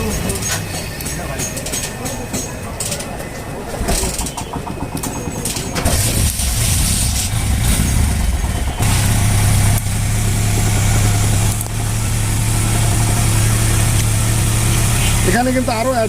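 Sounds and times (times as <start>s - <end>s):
motorcycle engine idling: 5.8s - 16.0s.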